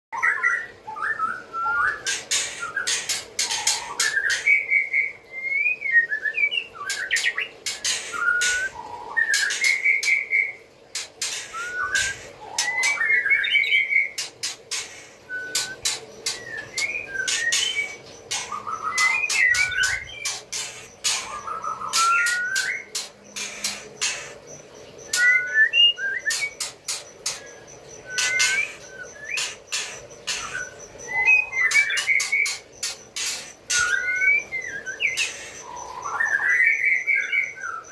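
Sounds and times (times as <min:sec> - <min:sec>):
bird whistling: 0:00.2 - 0:10.6, 0:11.2 - 0:24.4, 0:25.0 - 0:37.9
faint steady hum: 0:00.2 - 0:37.9.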